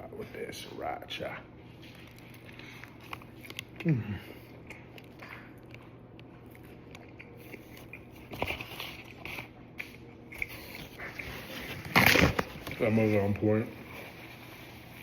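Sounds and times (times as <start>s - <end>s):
person chewing food: 1.8s - 11.6s.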